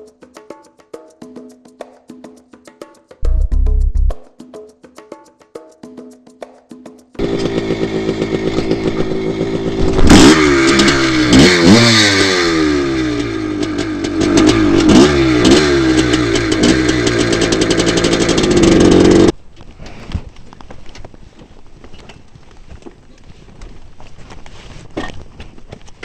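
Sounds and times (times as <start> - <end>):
two-stroke engine revving: 7.2 - 19.4.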